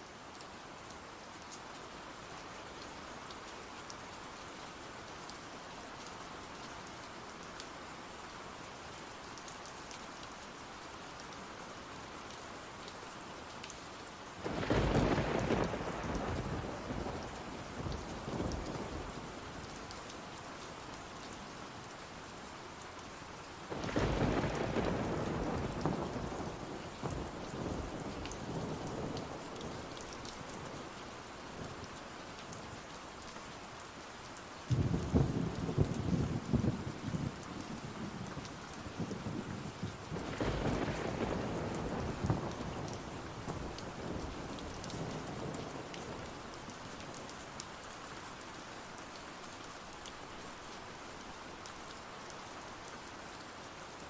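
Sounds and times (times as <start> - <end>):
steady rain: 0.0 - 54.0
thunder rumbles: 14.5 - 19.2, 23.7 - 29.6, 34.7 - 46.2.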